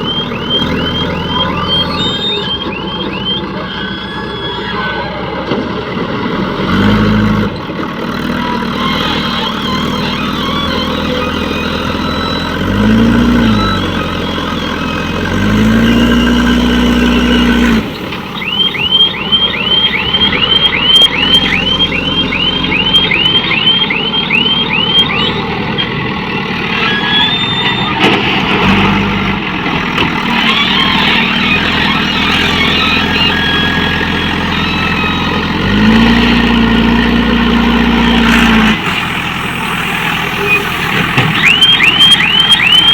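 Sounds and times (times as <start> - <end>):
rising electronic chirps: 0.0 - 4.9, 9.1 - 25.9, 30.2 - 38.4, 39.1 - 42.9
diesel engine revving: 0.0 - 42.9.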